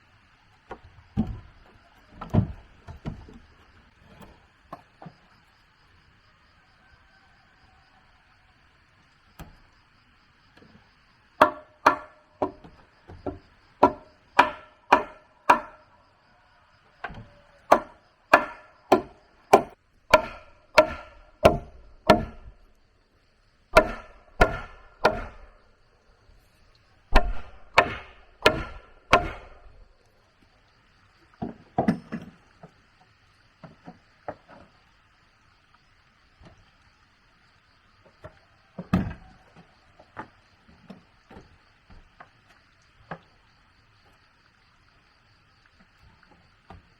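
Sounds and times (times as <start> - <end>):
tool chopping into wood: 11.4 - 15.8, 17.1 - 22.5, 23.8 - 25.5, 27.1 - 29.8.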